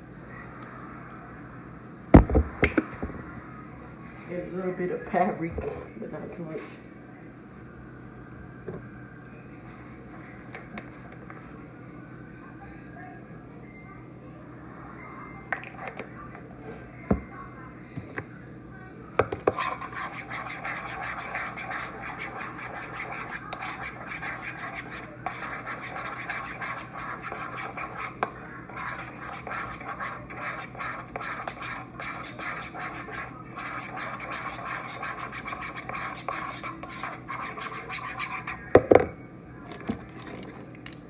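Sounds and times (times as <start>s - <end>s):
spoon stirring thick sauce: 19.2s - 38.7s.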